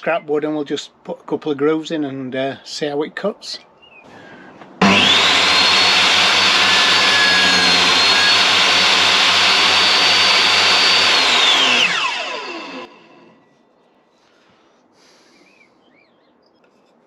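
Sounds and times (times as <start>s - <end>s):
table saw motor whining: 4.8s - 13.4s.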